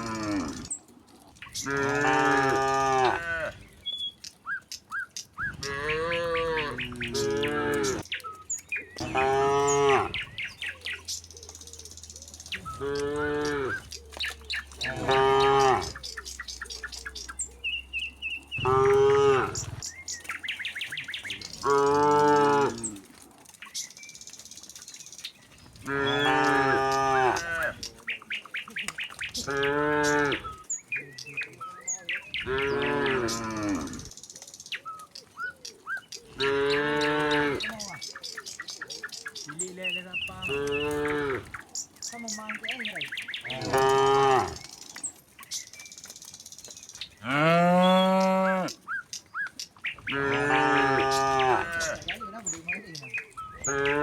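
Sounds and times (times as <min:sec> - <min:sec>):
cattle mooing: 0:00.0 - 0:03.7, 0:05.4 - 0:08.1, 0:09.0 - 0:10.5, 0:12.6 - 0:16.3, 0:18.4 - 0:20.3, 0:21.2 - 0:23.6, 0:25.8 - 0:28.1, 0:29.4 - 0:31.3, 0:32.4 - 0:34.1, 0:36.3 - 0:38.0, 0:39.5 - 0:45.0, 0:47.2 - 0:48.8, 0:50.0 - 0:52.5, 0:53.5 - 0:54.0.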